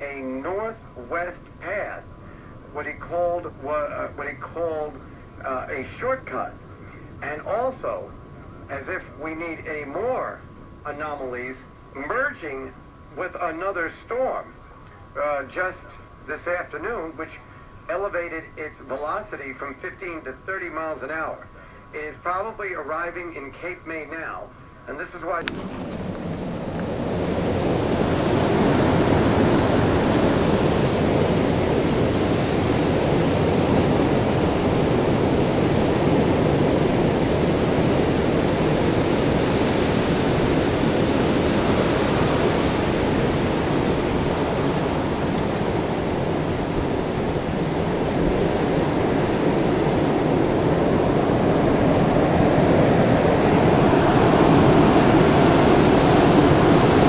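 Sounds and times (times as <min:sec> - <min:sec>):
storm wind rushing: 0:25.5 - 0:57.0.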